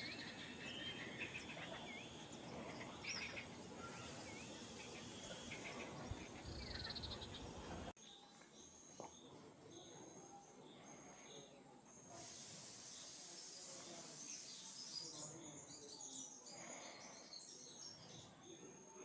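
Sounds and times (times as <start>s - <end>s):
insects humming: 0.0s - 7.9s
small birds chirping: 0.0s - 19.0s.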